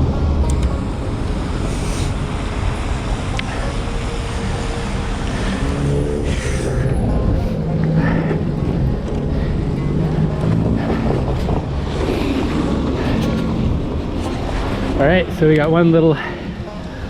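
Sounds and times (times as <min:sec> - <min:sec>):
wind rumbling on microphone: 0:00.0 - 0:16.9
passing vehicles humming: 0:00.0 - 0:17.0
tyres hissing through slush: 0:01.5 - 0:07.6.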